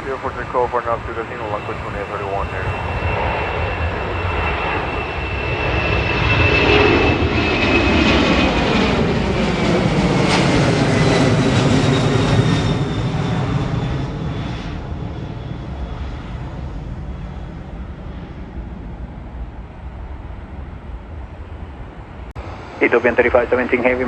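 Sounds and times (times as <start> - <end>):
jet engines at takeoff: 0.0 - 24.0.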